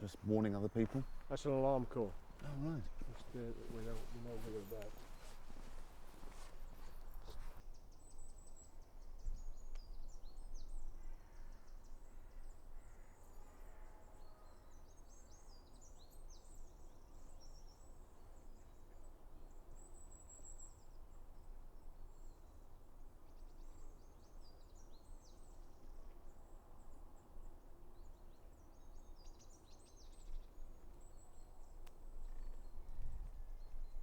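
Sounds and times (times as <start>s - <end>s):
short rustle: 0.0s - 7.6s
songbirds singing: 0.0s - 13.2s, 13.9s - 34.0s
wind rumble on microphone: 32.2s - 34.0s.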